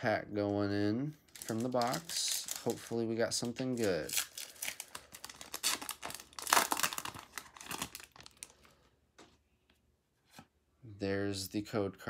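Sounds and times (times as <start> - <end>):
foil wrapper tearing and crinkling: 1.3 - 8.6.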